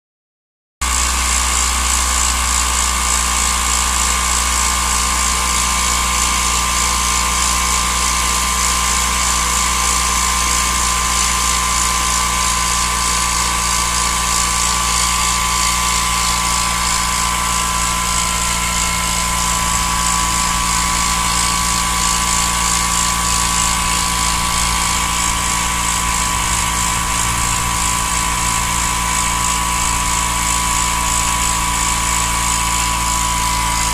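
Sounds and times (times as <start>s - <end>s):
car engine running: 5.4s - 33.9s
high whine: 12.8s - 33.9s.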